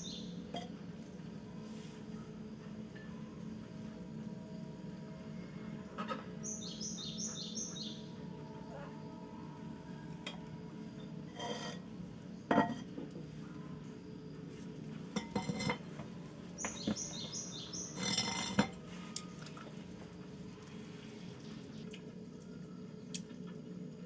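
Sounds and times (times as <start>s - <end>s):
bird chirping: 0.0s - 0.4s, 6.4s - 8.2s, 16.6s - 18.1s
dish scrapes: 11.3s - 11.9s, 15.2s - 15.9s, 17.9s - 18.8s
dishes and utensils clinking: 12.5s - 12.9s, 15.1s - 16.0s, 17.9s - 18.8s.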